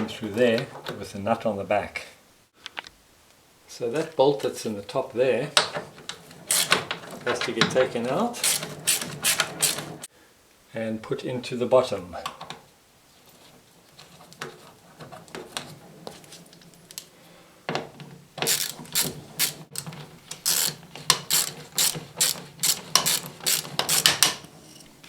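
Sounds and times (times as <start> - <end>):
ratchet clicking: 6.5 - 7.1, 8.4 - 10.0, 18.4 - 24.4.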